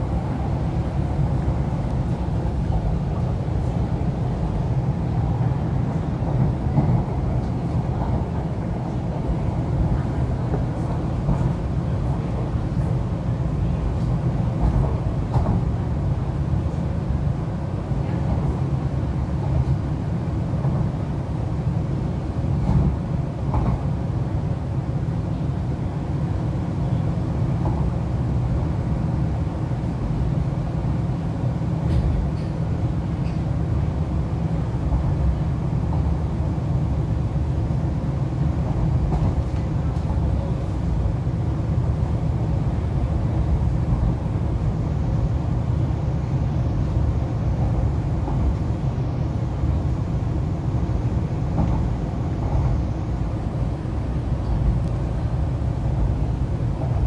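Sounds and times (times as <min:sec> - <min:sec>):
train interior rumble: 0:00.0 - 0:57.0.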